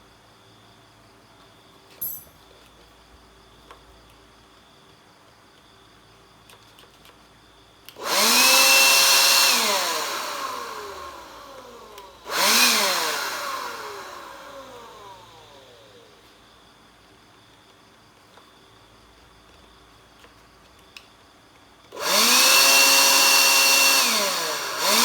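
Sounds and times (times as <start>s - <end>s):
electric dust blower whine: 8.0s - 16.4s, 21.9s - 25.0s.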